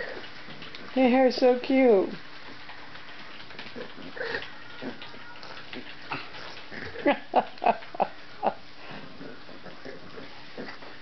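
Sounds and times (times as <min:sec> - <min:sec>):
puppies grunting: 0:02.5 - 0:11.0.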